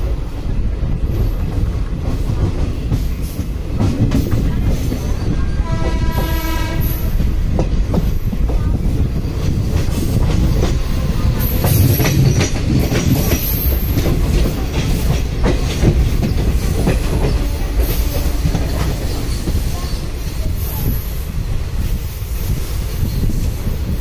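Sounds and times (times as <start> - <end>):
train rumbling: 0.0 - 24.0
train horn blast: 5.5 - 7.2, 17.2 - 18.9.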